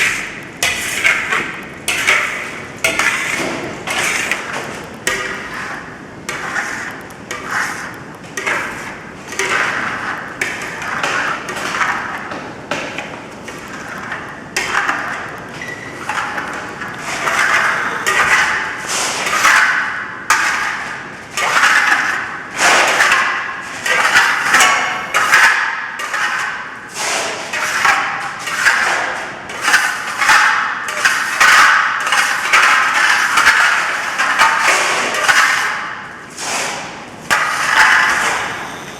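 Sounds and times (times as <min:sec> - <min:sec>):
trowel scraping plaster wall: 0:02.9 - 0:12.2, 0:17.0 - 0:38.6.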